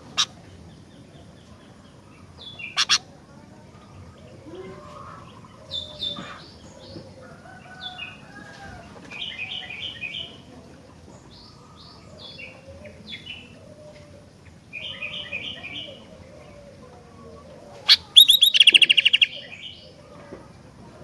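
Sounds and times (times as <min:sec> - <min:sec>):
soft low whistled bird notes: 0:00.0 - 0:20.2
bulbul chirping: 0:17.9 - 0:19.3.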